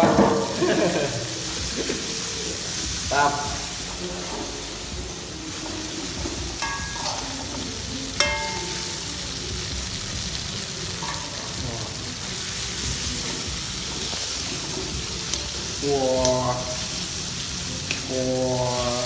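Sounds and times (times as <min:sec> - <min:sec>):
spice paste sizzling in oil: 0:00.0 - 0:19.0
metal utensil clinking on pan: 0:06.6 - 0:07.5, 0:08.2 - 0:09.2, 0:11.0 - 0:11.6.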